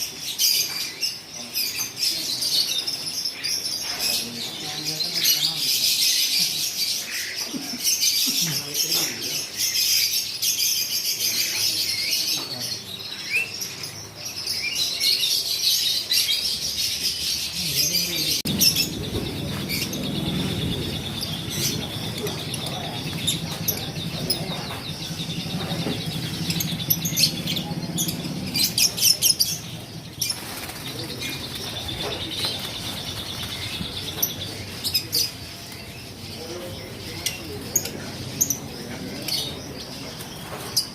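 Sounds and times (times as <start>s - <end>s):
lovebirds chirping: 0.0s - 40.9s
wings flapping: 18.5s - 34.3s.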